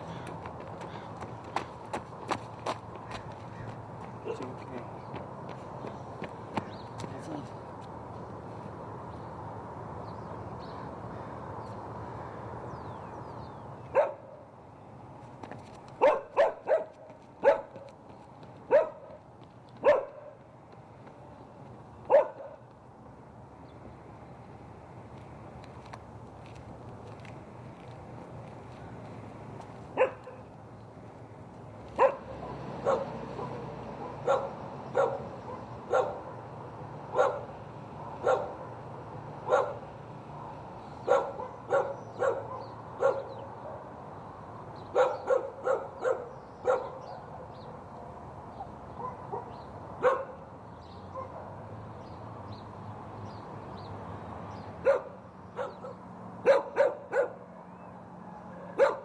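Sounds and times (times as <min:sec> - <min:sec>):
dog barking: 0:04.2 - 0:04.5, 0:13.9 - 0:14.4, 0:16.0 - 0:17.9, 0:18.7 - 0:19.2, 0:19.8 - 0:20.4, 0:22.1 - 0:22.6, 0:30.0 - 0:30.4, 0:32.0 - 0:36.4, 0:37.1 - 0:37.5, 0:38.1 - 0:38.7, 0:39.5 - 0:39.8, 0:40.4 - 0:43.8, 0:44.9 - 0:47.3, 0:49.0 - 0:50.4, 0:51.1 - 0:51.6, 0:54.8 - 0:57.5, 0:58.5 - 0:59.0.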